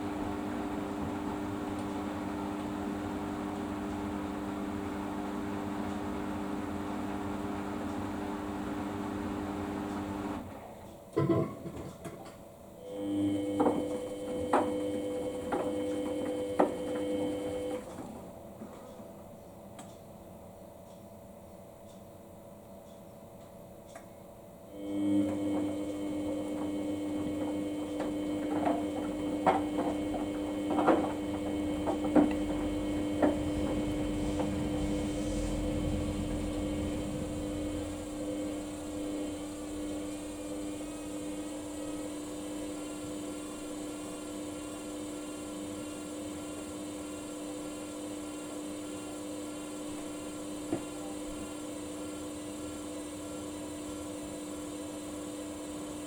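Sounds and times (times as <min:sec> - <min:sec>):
washing machine motor hum: 0:00.0 - 0:56.0
low rumble: 0:32.4 - 0:40.9.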